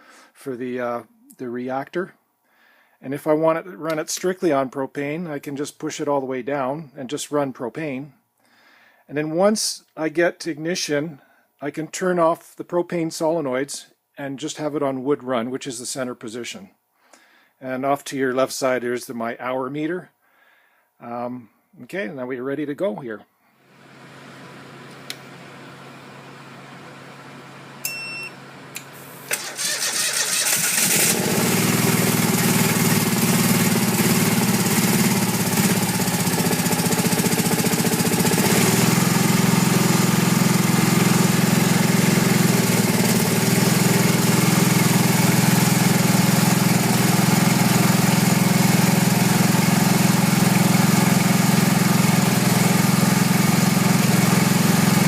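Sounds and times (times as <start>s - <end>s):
click: 24.9s - 25.2s
short beep: 27.8s - 28.4s
generator engine cranking and running: 28.7s - 55.0s.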